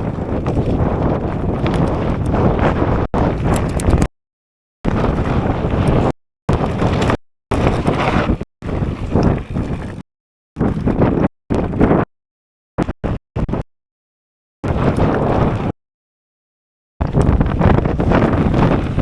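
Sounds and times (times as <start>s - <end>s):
wind buffeting microphone: 0.0s - 4.1s, 4.9s - 10.0s, 10.6s - 12.0s, 14.6s - 15.7s, 17.0s - 19.0s.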